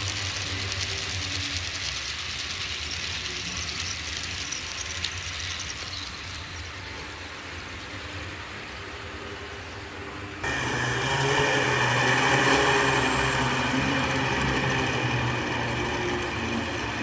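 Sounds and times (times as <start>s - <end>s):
model train wheels on rail: 0.0s - 17.0s
low motor hum: 10.4s - 17.0s.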